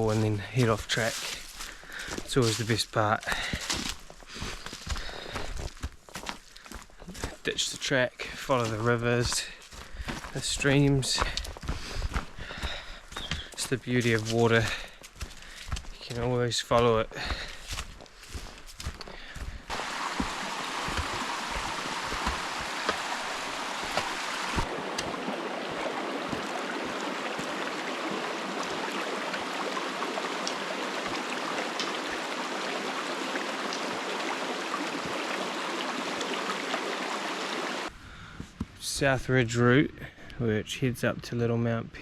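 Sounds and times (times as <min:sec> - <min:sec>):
stream flowing: 0:19.7 - 0:37.9.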